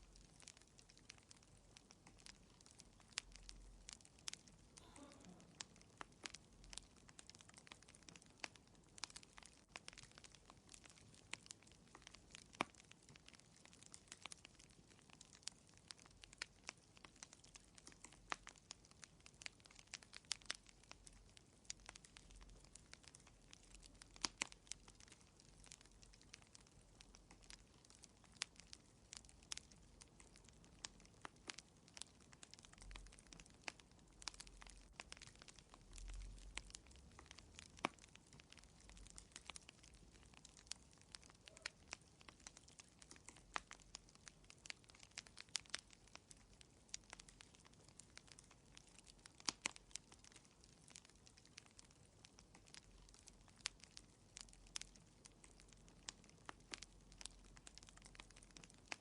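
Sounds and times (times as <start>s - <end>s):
faint hiss: 0.0s - 6.9s
faint low rumble: 0.0s - 59.0s
fireplace fire crackling: 0.0s - 59.0s.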